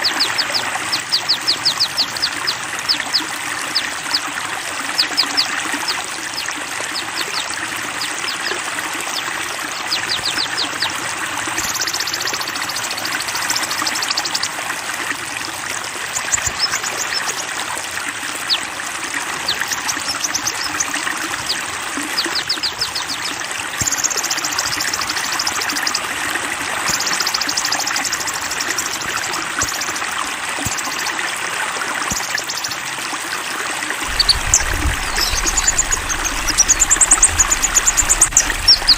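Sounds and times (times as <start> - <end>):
running water trickling: 0.0 - 38.9
songbirds chirping: 9.1 - 10.9, 34.1 - 38.9.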